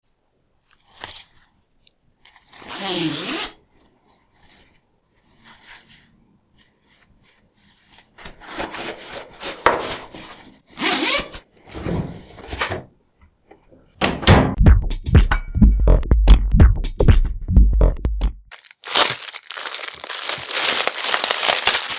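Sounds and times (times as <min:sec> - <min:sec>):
music with a beat: 0:14.5 - 0:18.5.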